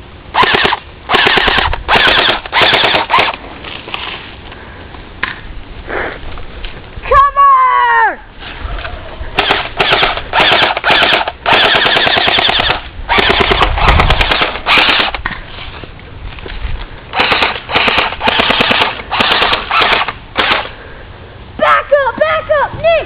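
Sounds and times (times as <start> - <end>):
airsoft rifles firing bursts: 0.3 - 3.4, 9.4 - 15.2, 17.2 - 20.7.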